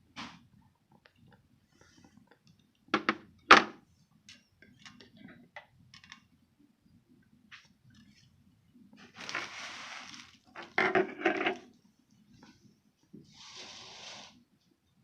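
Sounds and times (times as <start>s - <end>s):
tableware knocks: 3.0s - 3.7s.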